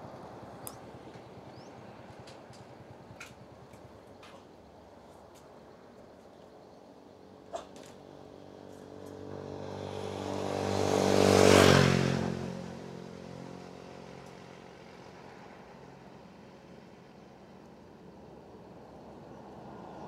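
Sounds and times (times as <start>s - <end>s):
vehicle passing by: 8.8s - 15.5s.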